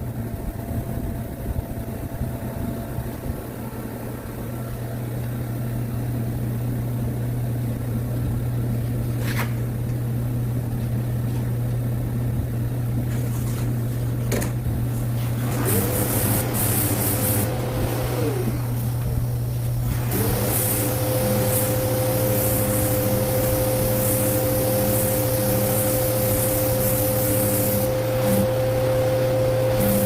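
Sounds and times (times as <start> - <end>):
constant low hum: 0.0 - 30.0
small motor whining: 15.3 - 19.2, 19.8 - 30.0
short scratchy sanding strokes: 15.5 - 17.9, 20.1 - 28.5.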